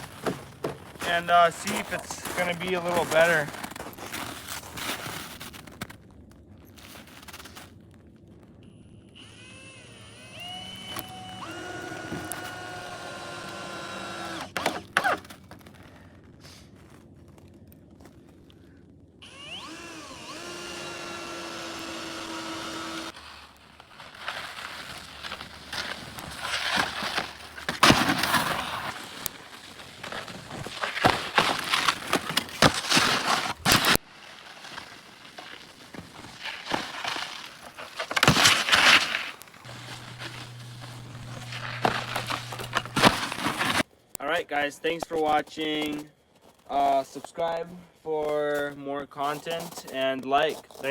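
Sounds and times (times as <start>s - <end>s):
drill motor whine: 9.1s - 15.0s, 19.2s - 23.2s, 39.7s - 43.8s.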